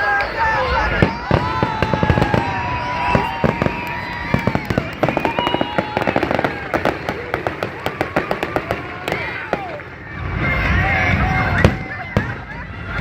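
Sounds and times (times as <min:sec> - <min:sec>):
fireworks bangs: 0:00.0 - 0:13.0
fireworks crackling pops: 0:01.0 - 0:10.1.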